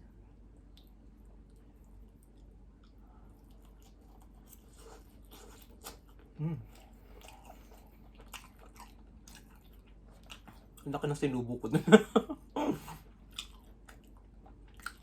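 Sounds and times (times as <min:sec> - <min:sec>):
chewing food: 0:00.6 - 0:11.0, 0:13.0 - 0:15.0
person humming: 0:06.4 - 0:06.7.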